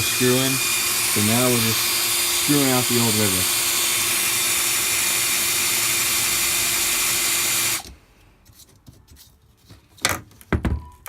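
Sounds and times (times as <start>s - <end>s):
electric drill running: 0.0s - 7.9s.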